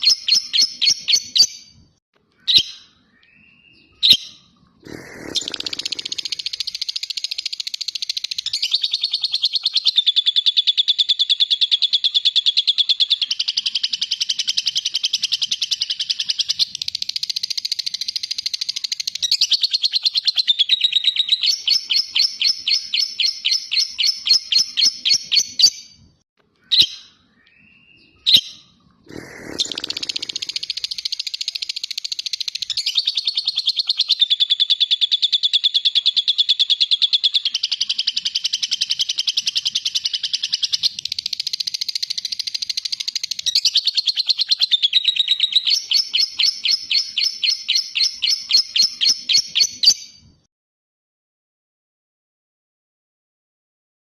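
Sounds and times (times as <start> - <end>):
bird chirps: 0.0 - 50.4
bird chattering rapidly: 4.8 - 10.1, 29.1 - 34.5.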